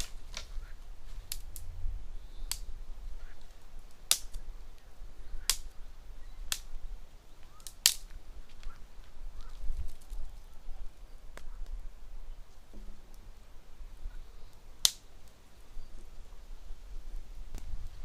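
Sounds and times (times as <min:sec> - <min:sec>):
campfire wood popping: 0:00.0 - 0:18.0
low fire rumble: 0:00.0 - 0:18.0.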